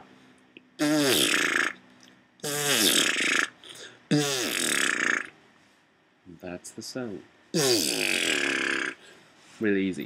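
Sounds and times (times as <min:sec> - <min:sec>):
beatboxing wet lip oscillation: 0:00.6 - 0:01.8, 0:02.4 - 0:05.4, 0:07.6 - 0:09.0.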